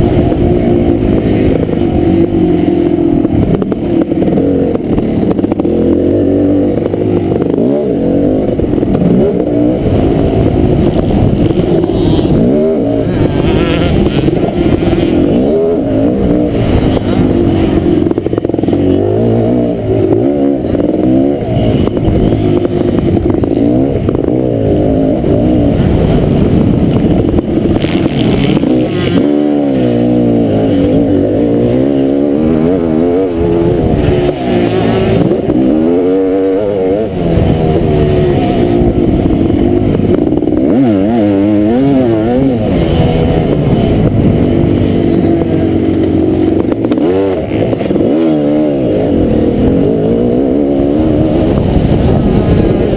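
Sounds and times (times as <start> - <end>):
motocross bike engine revving: 0.0 - 52.9.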